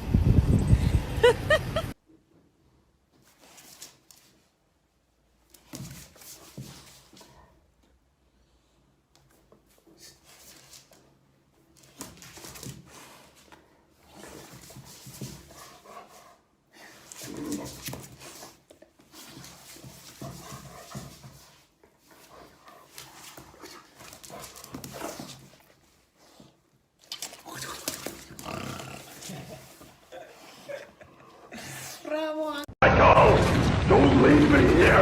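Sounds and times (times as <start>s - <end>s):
dog panting: 19.3s - 26.6s.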